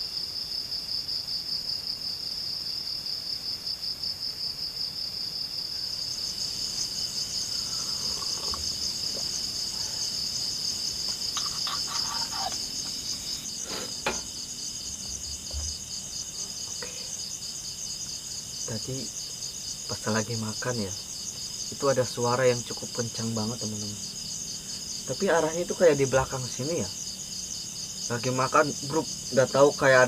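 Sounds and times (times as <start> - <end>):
higher-pitched insect: 0.0 - 30.0
night insects chirring: 0.0 - 30.0
faint knocks and clatters: 11.0 - 16.9.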